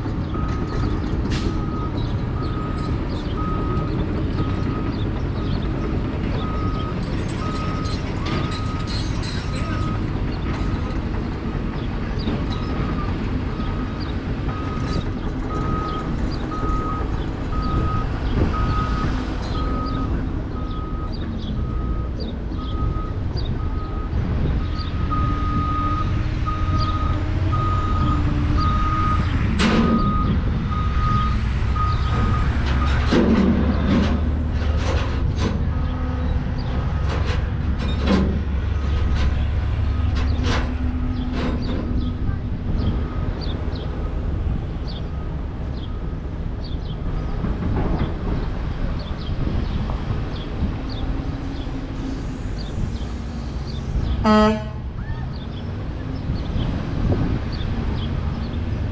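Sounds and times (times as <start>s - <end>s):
diesel engine rumbling: 0.0s - 58.9s
truck backup alarm beeping: 0.3s - 10.9s, 12.5s - 33.1s, 52.0s - 54.7s.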